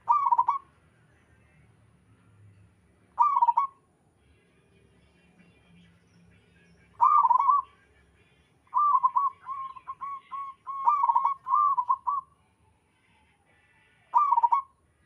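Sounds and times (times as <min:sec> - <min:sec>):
dove cooing: 0:00.0 - 0:00.7, 0:03.2 - 0:03.7, 0:07.0 - 0:07.6, 0:08.7 - 0:12.3, 0:14.1 - 0:14.7
faint bird chirps: 0:00.0 - 0:01.6, 0:03.2 - 0:15.0.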